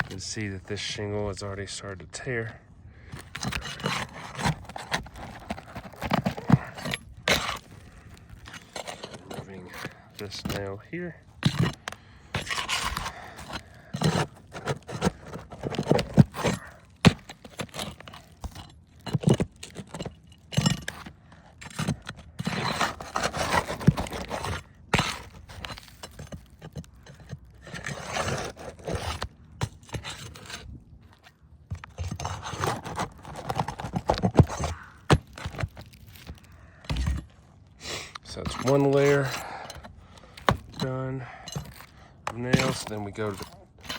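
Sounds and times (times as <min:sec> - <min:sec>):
sharp knocks and crackles: 0:03.0 - 0:37.6
metal tool scraping shingles: 0:03.0 - 0:43.9.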